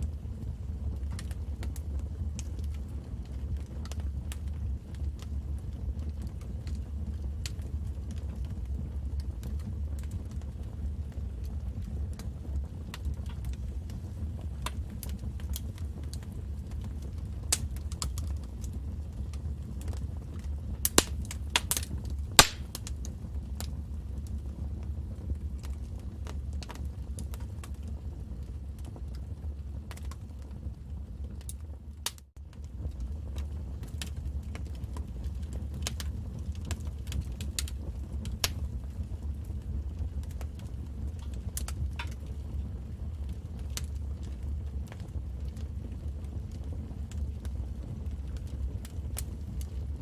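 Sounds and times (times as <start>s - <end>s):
wood fire crackling: 0.0s - 50.0s
loud fire pop: 20.8s - 23.0s.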